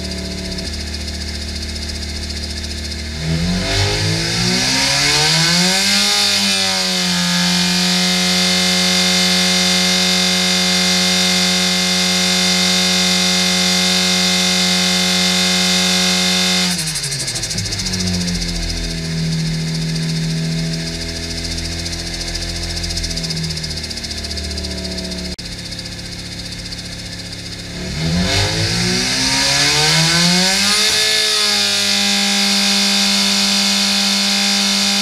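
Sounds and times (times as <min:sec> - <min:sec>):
engine idling and revving: 0:00.0 - 0:35.0.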